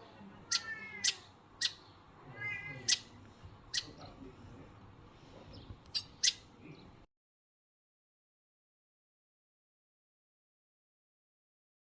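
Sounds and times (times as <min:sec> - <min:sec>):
birds calling: 0:00.0 - 0:07.0.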